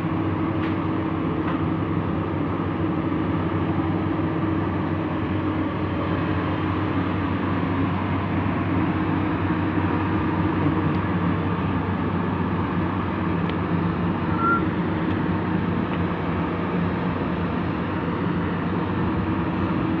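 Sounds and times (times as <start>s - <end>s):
heavy diesel engine running: 0.0s - 20.0s
brief high tone: 14.3s - 14.7s.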